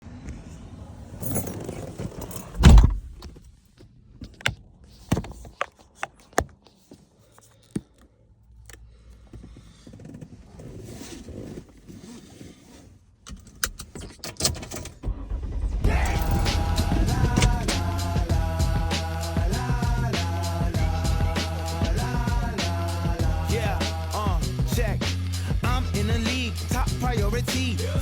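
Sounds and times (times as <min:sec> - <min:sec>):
sharp clicks and knocks: 0:13.3 - 0:18.2
music with a beat: 0:15.9 - 0:28.0.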